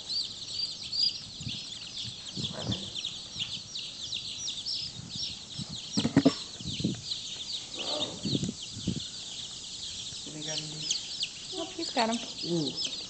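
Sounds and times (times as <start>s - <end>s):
chicks peeping: 0.0s - 13.0s
loud thumps: 5.9s - 6.5s.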